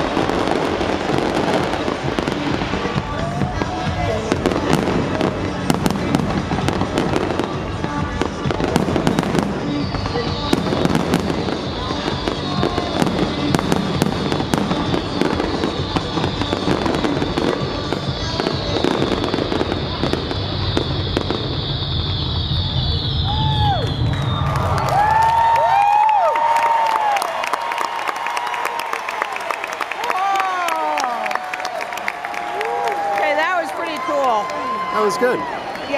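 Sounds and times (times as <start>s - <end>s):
fireworks bursting: 0.0s - 28.4s.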